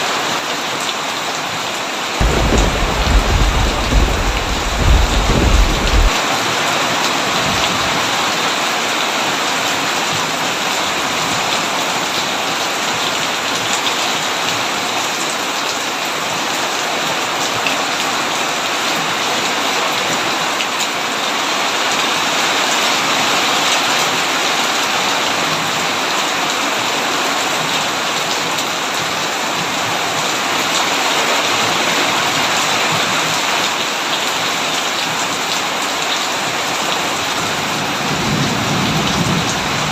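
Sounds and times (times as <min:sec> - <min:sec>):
heavy rain on a tin roof: 0:00.0 - 0:39.9
thunder rumble: 0:02.2 - 0:06.2.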